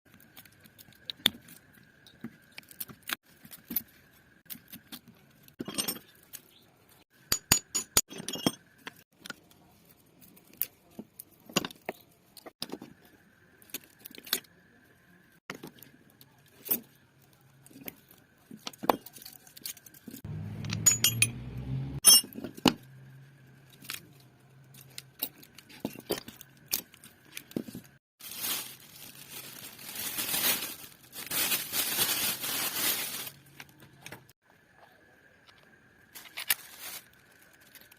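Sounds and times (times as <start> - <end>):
metal parts clinking: 18.8 - 21.4.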